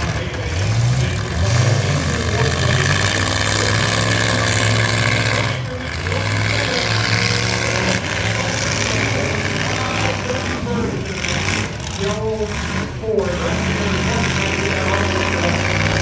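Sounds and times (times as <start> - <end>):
truck engines revving: 0.0 - 16.0.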